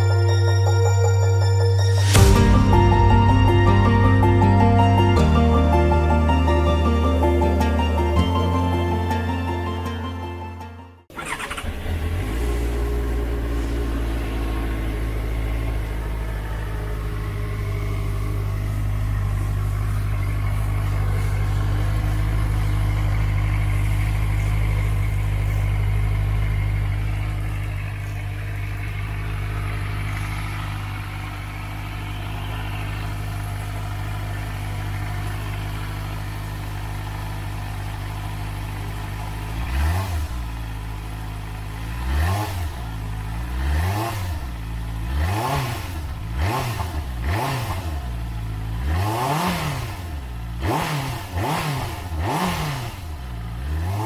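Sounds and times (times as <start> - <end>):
motorcycle engine idling: 11.1 - 47.3, 47.9 - 48.8, 49.5 - 53.9.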